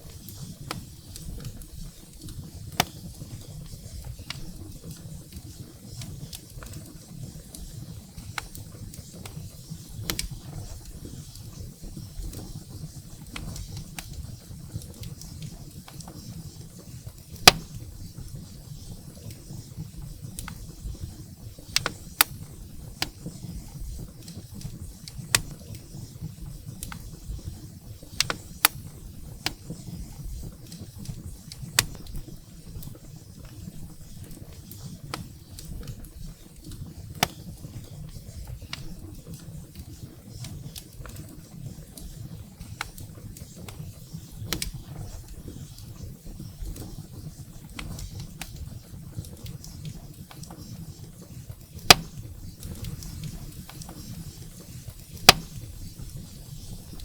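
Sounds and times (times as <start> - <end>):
firewood crackling and popping: 0.0 - 57.0
low rumble of flames: 0.0 - 57.0.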